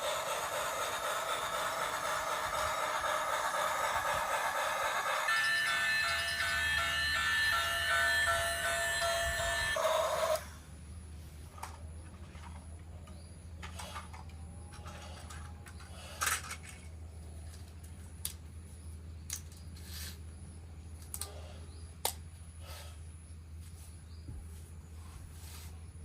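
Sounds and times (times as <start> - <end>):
plastic toy parts clicking: 19.3 - 19.6, 21.0 - 21.3.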